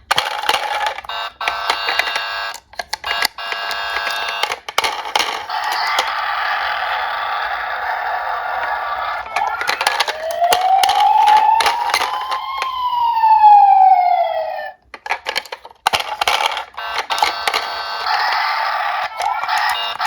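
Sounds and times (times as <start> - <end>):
police siren wail: 5.5 - 14.8, 16.9 - 20.0
sharp clicks and clatter: 14.9 - 20.0.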